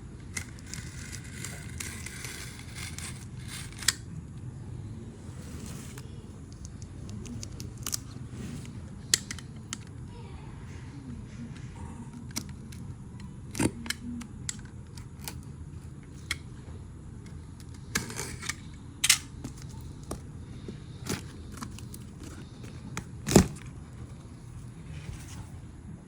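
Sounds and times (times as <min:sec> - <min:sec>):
steady low hum: 0:00.0 - 0:26.0
handling clicks and knocks: 0:17.2 - 0:24.7.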